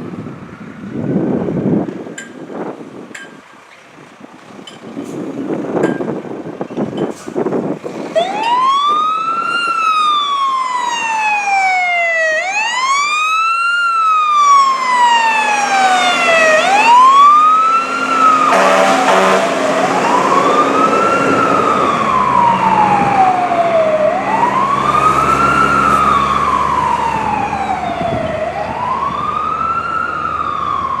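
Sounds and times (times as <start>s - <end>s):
fire truck siren wailing: 7.5s - 31.0s.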